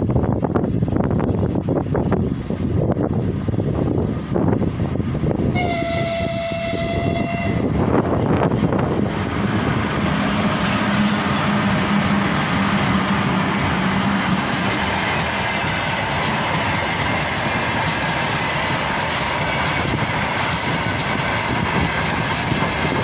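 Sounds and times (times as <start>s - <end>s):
train rumbling past: 0.0s - 23.0s
train horn blast: 5.5s - 7.8s.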